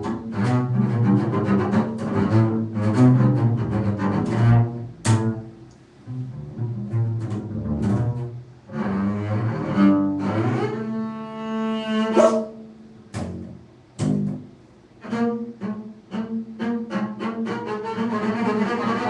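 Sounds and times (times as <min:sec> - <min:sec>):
low bowed string instrument: 0:00.0 - 0:19.0.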